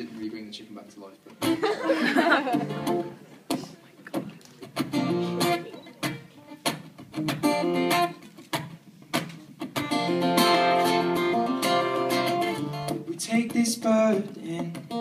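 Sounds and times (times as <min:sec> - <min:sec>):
acoustic guitar strumming: 0:02.5 - 0:03.6, 0:04.2 - 0:15.0.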